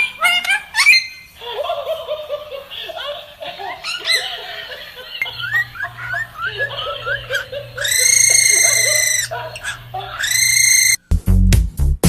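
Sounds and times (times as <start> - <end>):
bird laugh-like calls: 0.0 - 11.0
bird screech: 7.3 - 11.0.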